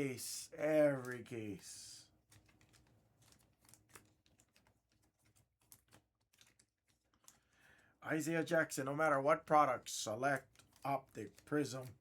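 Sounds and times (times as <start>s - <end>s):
trading cards clicking: 0.9s - 1.7s.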